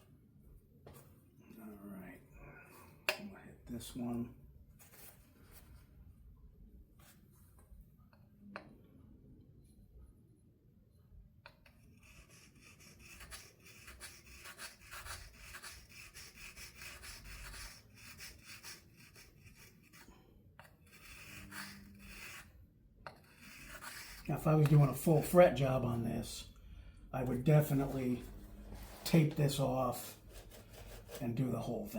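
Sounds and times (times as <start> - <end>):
file rubbing on guitar fret: 12.0 - 22.6, 23.2 - 24.8.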